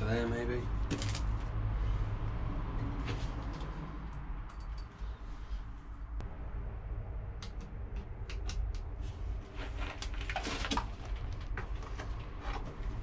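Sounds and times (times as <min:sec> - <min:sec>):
low rumble: 0:05.6 - 0:10.3
plastic parts clicking and scraping: 0:09.6 - 0:13.0.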